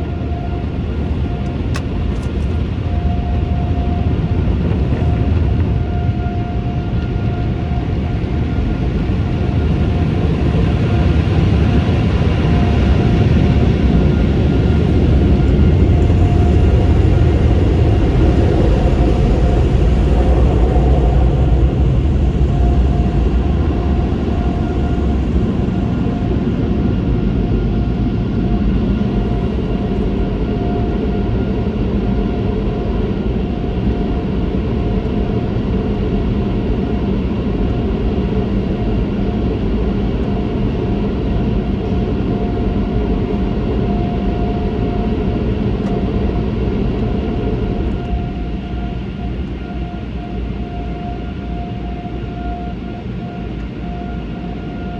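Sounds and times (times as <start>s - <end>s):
motor whine: 0.0s - 32.4s
car wash machinery rumble: 11.1s - 30.3s.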